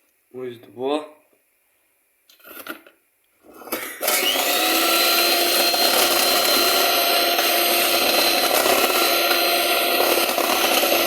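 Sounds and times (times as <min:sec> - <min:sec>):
blender motor running: 0:03.5 - 0:11.0.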